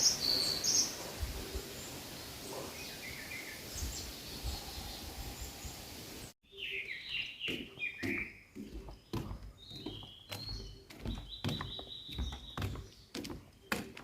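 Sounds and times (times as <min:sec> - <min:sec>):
outdoor ambience hiss: 0:00.0 - 0:06.4
birds chirping: 0:00.0 - 0:14.0
bird singing falling notes: 0:06.5 - 0:14.0.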